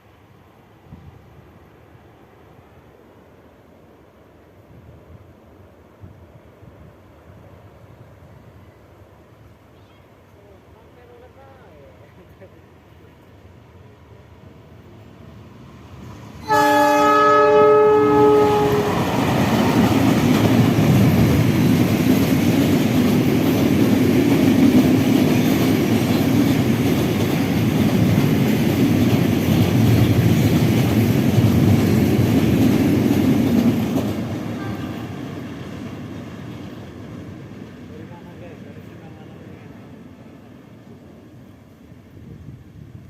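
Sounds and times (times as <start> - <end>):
train wheels rumbling on rails: 14.4 - 43.0
train horn chord: 16.4 - 19.4, 34.5 - 35.3.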